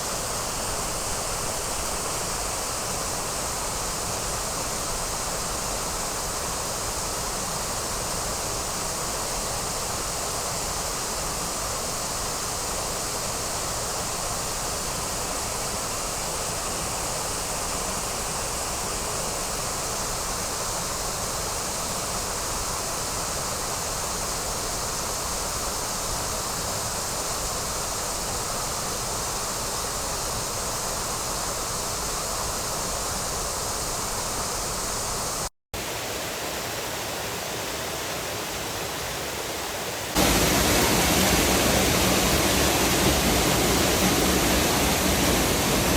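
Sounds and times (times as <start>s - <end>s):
waterfall rushing: 35.8s - 45.9s.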